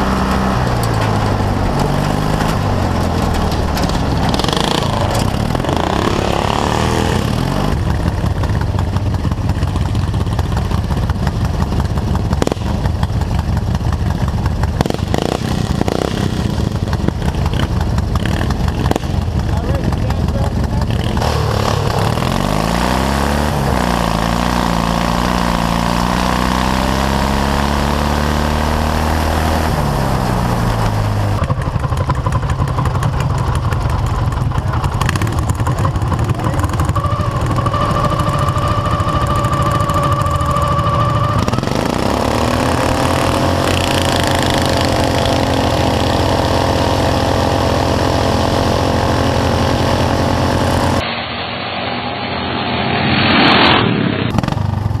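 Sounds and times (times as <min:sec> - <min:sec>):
lawn tractor engines revving: 0:00.0 - 0:52.7, 0:54.3 - 0:55.0
steady high whine: 0:49.0 - 0:55.0.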